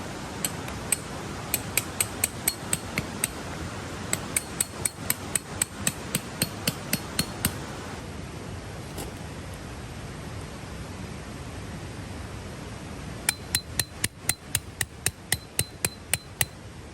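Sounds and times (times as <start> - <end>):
hammer striking metal: 0.4 - 3.4, 4.1 - 7.6, 13.3 - 16.6.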